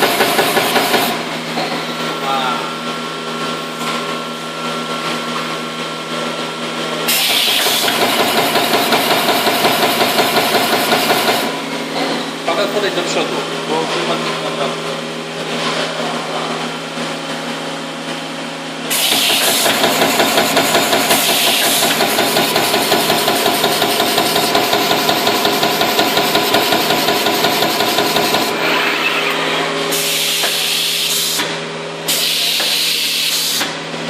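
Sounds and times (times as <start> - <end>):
machine hum: 7.7 - 32.1
air hiss bursts: 18.9 - 19.8, 29.9 - 31.5.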